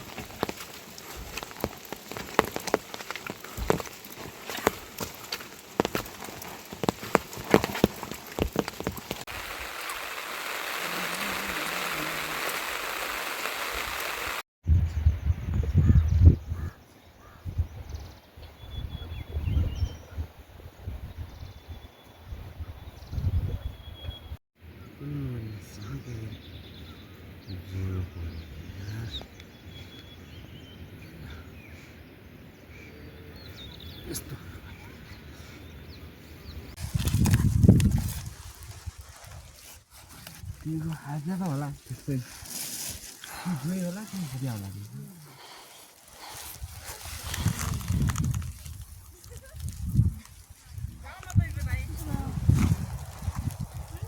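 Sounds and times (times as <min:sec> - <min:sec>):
rain hissing: 0:00.0 - 0:14.4, 0:36.7 - 0:54.0
low drawn-out call: 0:10.1 - 0:14.3
small birds chirping: 0:21.2 - 0:54.0.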